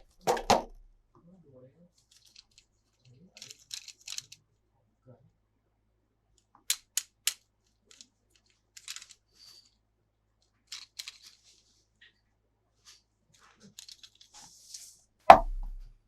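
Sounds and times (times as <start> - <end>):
toy clicking: 3.3 - 4.4, 6.4 - 9.3, 10.7 - 11.4.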